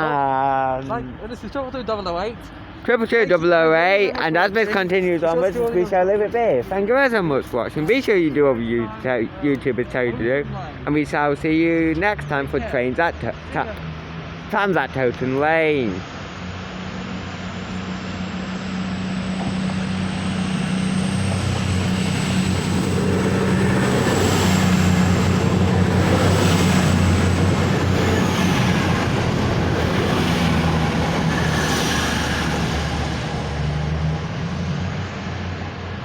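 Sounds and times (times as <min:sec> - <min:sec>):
diesel train engine drone: 0:00.0 - 0:36.0
train high whine: 0:13.2 - 0:36.0.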